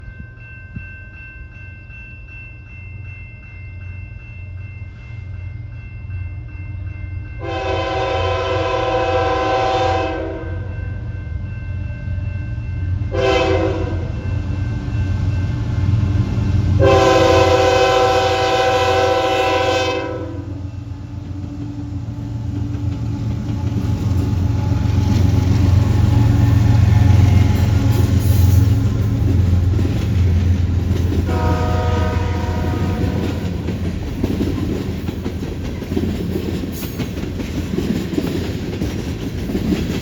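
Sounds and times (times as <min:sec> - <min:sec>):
locomotive horn blasts: 0:07.4 - 0:10.7, 0:13.1 - 0:14.1, 0:16.8 - 0:20.6, 0:31.3 - 0:33.6
locomotive rumble: 0:14.8 - 0:40.0.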